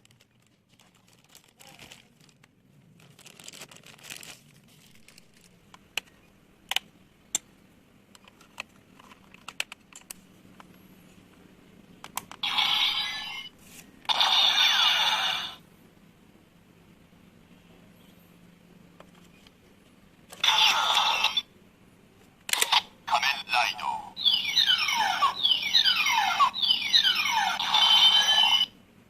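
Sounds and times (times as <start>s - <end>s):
plastic packaging rustling: 0.0s - 5.7s
sharp plastic clicks: 5.7s - 7.5s, 8.1s - 10.7s, 12.0s - 12.4s
toy electronic sound bursts: 12.4s - 13.5s, 14.1s - 15.6s, 20.4s - 21.5s, 22.8s - 28.7s.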